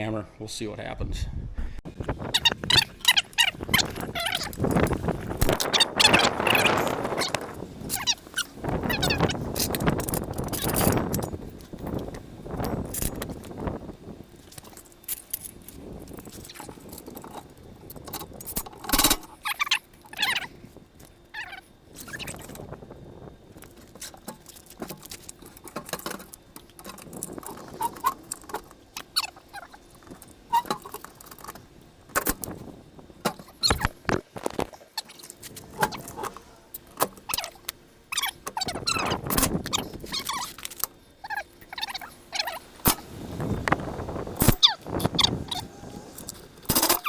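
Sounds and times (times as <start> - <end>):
hand tools clanking on metal: 16.9 - 19.5
short squeaks: 27.4 - 31.5, 33.4 - 34.0, 37.2 - 42.6.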